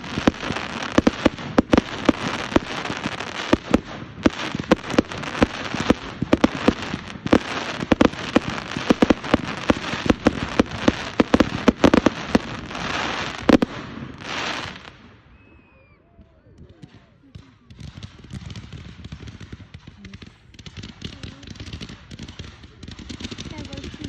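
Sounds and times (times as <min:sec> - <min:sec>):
fireworks hissing: 0:00.0 - 0:15.0
fireworks cracking and banging: 0:00.0 - 0:15.2, 0:16.2 - 0:24.0.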